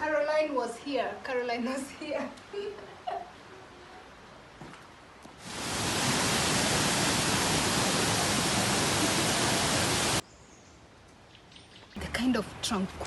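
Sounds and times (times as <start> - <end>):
waterfall rushing: 5.4 - 10.2.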